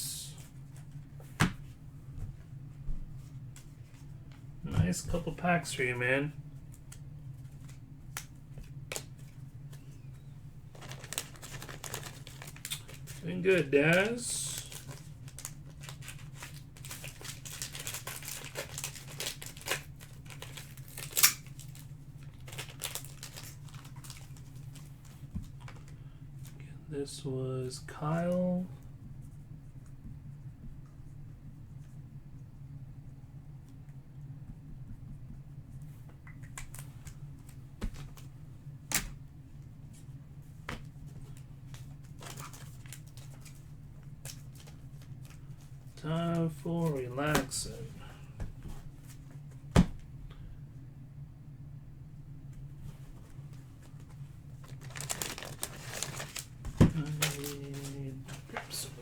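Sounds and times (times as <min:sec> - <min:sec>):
cards being handled: 0:06.6 - 0:25.9, 0:40.7 - 0:49.8, 0:53.1 - 0:59.0
card wrappers crinkling: 0:10.7 - 0:25.9, 0:41.7 - 0:47.9, 0:54.6 - 0:59.0.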